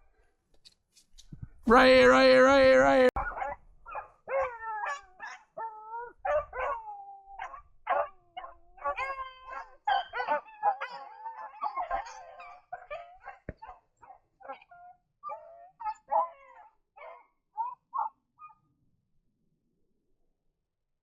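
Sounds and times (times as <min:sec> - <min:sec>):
hounds baying and howling: 0:03.1 - 0:18.6.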